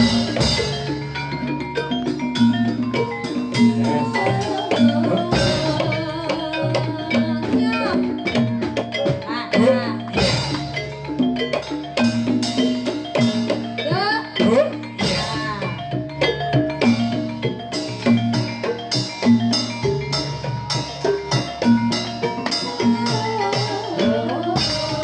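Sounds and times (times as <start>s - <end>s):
drum beats: 0.0s - 25.0s
metallophones ringing: 0.0s - 25.0s
person singing: 3.6s - 8.5s, 9.2s - 10.2s, 22.6s - 25.0s.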